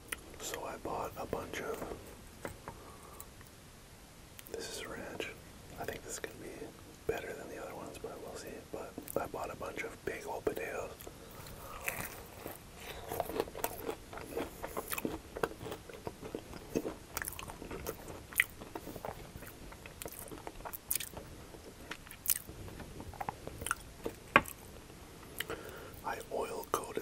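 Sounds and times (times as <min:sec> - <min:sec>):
crunchy food being chewed: 0:10.5 - 0:27.0.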